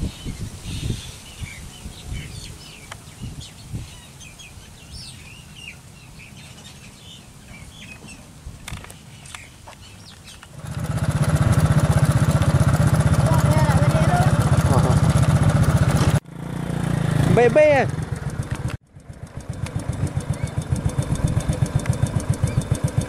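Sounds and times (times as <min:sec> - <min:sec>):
small birds chirping: 0:00.0 - 0:10.6, 0:20.3 - 0:20.7, 0:22.2 - 0:23.0.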